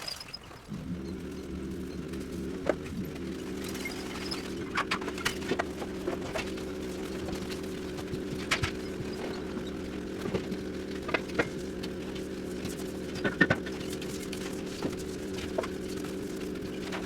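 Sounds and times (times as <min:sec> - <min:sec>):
knocks and clanks of demolition: 0:00.0 - 0:17.0
machine hum: 0:00.6 - 0:17.0.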